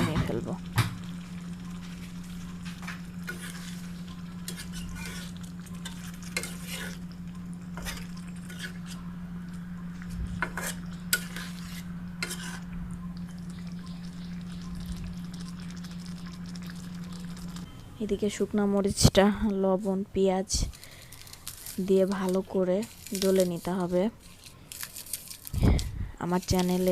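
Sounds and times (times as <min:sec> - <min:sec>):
curry sizzling: 0:00.0 - 0:19.1, 0:20.8 - 0:25.6, 0:26.2 - 0:26.9
low hum: 0:00.0 - 0:26.8
spatula scraping cooking pot: 0:03.2 - 0:07.0, 0:07.8 - 0:09.1, 0:10.3 - 0:12.7.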